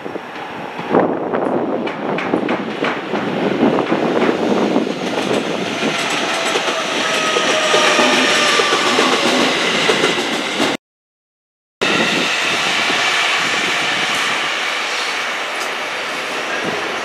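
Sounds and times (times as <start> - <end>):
train rail rumble: 0.0 - 10.8.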